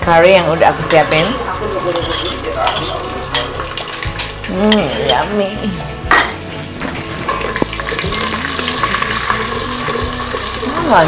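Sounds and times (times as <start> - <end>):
curry paste sizzling in pot: 0.0 - 5.6, 6.2 - 11.0
utensil clinking on metal: 0.8 - 5.3.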